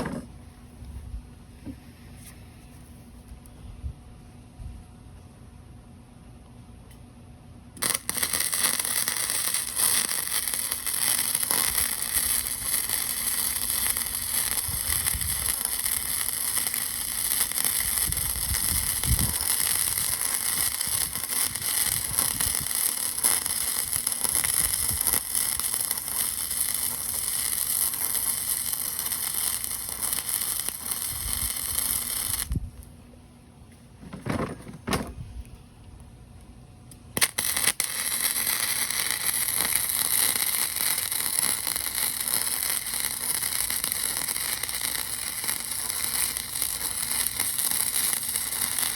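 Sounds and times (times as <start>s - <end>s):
arc welding crackling hiss: 7.8s - 32.8s, 37.2s - 48.9s.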